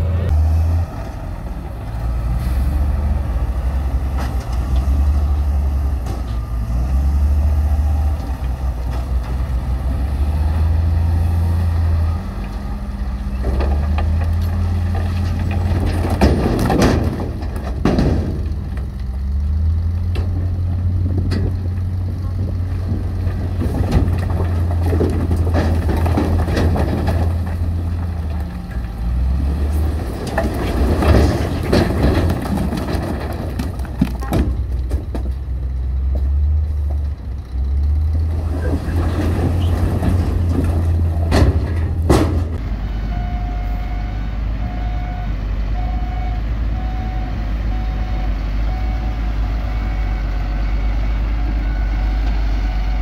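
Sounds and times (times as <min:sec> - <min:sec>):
heavy machinery diesel engine rumbling: 0:00.0 - 0:53.0.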